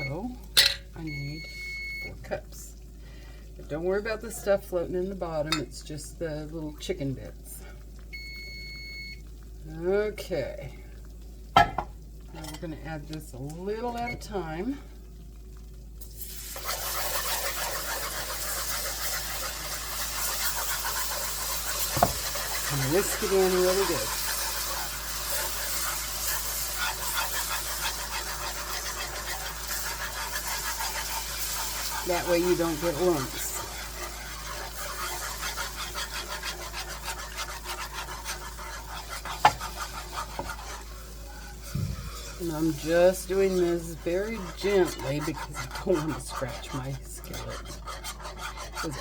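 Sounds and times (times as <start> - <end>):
broth sizzling in a skillet: 1.4 - 49.0
whisk swishing in a pan: 15.5 - 49.0.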